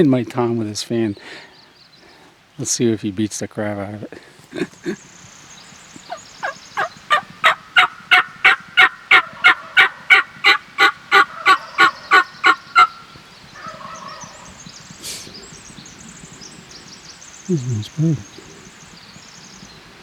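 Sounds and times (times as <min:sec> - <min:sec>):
turkey call yelps: 0:06.1 - 0:15.3.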